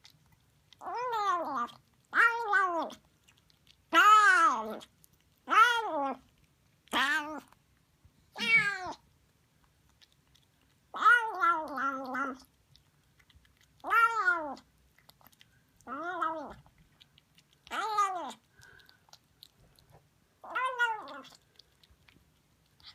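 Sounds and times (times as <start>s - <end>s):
kitten meowing: 8.4s - 9.0s, 20.4s - 21.4s.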